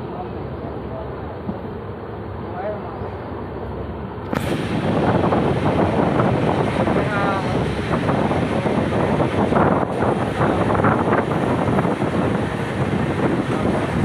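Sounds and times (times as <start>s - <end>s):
train wheels on rails: 0.0s - 14.0s
wind rushing past: 4.3s - 14.0s.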